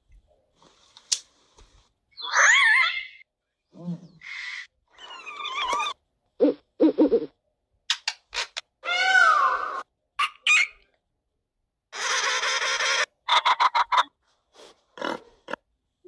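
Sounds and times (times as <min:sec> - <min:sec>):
parrot clicks and squawk: 0:10.2 - 0:10.9, 0:12.0 - 0:14.1.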